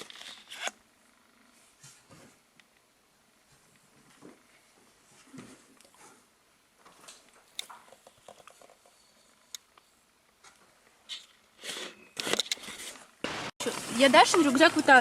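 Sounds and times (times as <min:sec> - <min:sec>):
rustling: 0:03.4 - 0:15.0.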